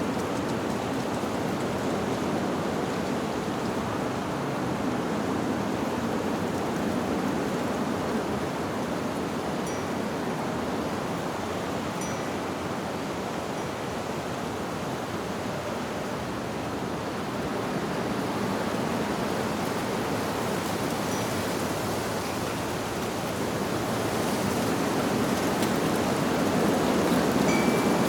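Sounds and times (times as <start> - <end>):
wind rushing through leaves: 0.0 - 28.0
wind chime tinkling: 12.0 - 12.4, 27.5 - 28.0.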